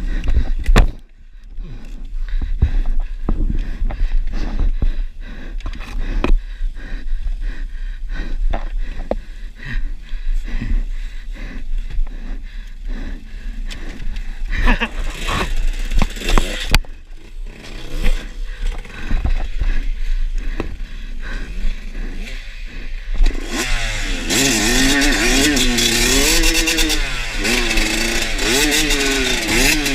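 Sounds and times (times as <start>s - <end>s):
knocks and clatter on trail: 0.0s - 23.6s
motorcycle engine revving: 13.6s - 29.9s.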